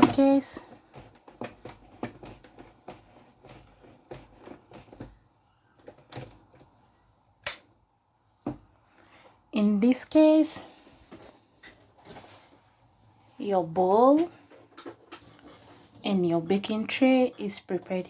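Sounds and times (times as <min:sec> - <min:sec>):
kitchen items clicking and tapping: 0:00.0 - 0:06.8.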